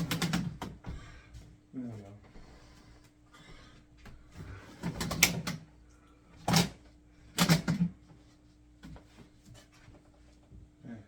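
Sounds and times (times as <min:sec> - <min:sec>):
plastic parts knocking and rattling: 0:00.0 - 0:00.8.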